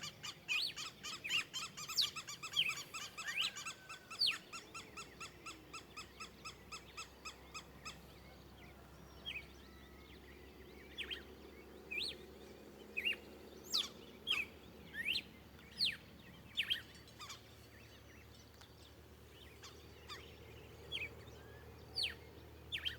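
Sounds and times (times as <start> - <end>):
birds whistling: 0.0 - 7.6, 13.0 - 17.5, 19.4 - 22.9.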